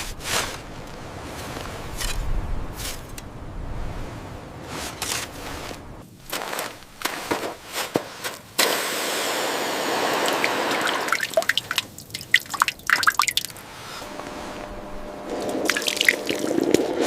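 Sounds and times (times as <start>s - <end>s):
water pouring: 10.1s - 13.6s, 15.4s - 17.0s
water dripping: 10.2s - 13.6s, 15.6s - 16.8s.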